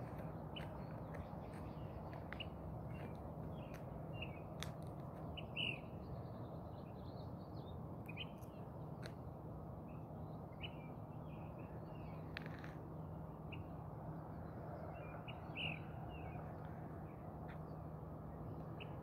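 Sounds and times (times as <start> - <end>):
birds chirping: 5.2 - 8.6.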